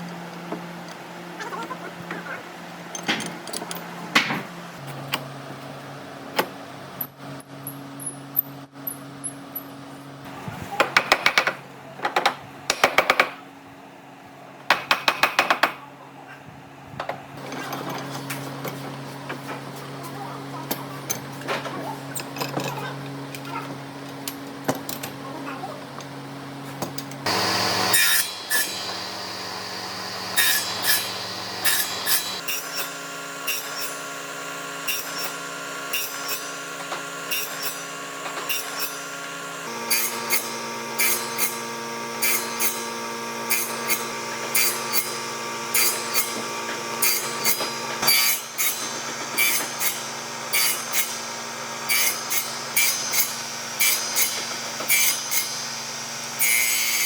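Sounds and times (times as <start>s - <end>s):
woodworking tool motor hum: 25.9s - 57.0s
tool cutting and rubbing wood: 27.2s - 57.0s.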